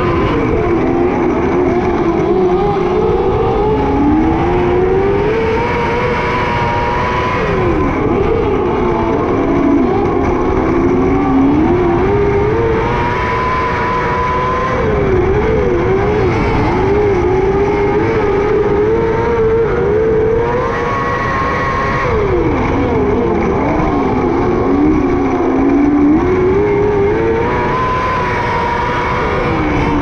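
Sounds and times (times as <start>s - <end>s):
race car engine revving: 0.0s - 30.0s.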